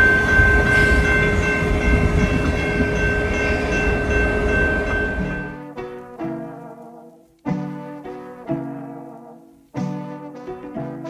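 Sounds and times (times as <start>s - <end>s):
held high tones: 0.0s - 5.6s
train rumbling: 0.0s - 5.6s
orchestral music: 0.0s - 6.9s.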